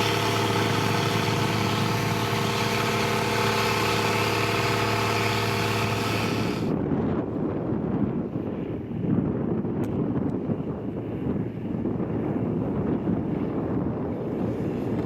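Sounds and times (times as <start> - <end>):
diesel engine running: 0.0 - 6.7.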